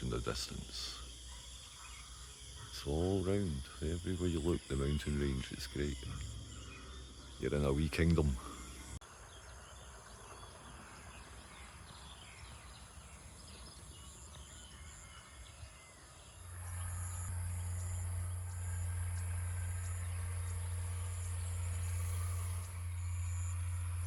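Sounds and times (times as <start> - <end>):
birds chirping: 0.0 - 24.0
high insect drone: 0.0 - 24.0
steady low hum: 16.3 - 24.0.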